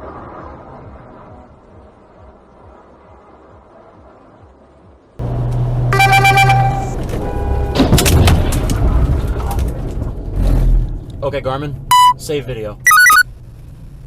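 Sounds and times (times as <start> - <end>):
road noise inside car: 0.0 - 14.0
car horn: 5.9 - 8.1, 11.9 - 12.2.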